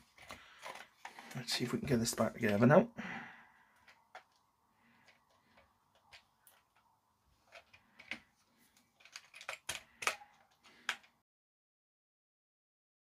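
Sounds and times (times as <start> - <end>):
plastic parts clicking and tapping: 0.0 - 2.7, 3.7 - 11.2.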